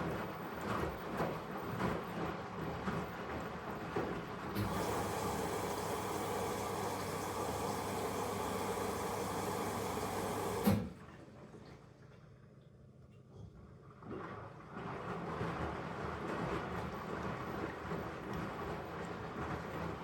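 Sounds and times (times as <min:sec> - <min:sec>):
water hissing into washing machine: 0:00.0 - 0:11.6
washing machine click: 0:04.6 - 0:10.9.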